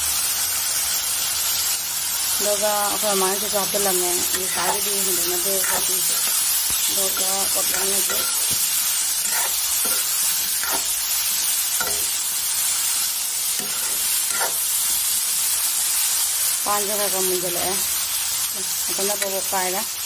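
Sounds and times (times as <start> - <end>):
food sizzling in oil: 0.0 - 20.0
metal spatula scraping pan: 3.6 - 15.0.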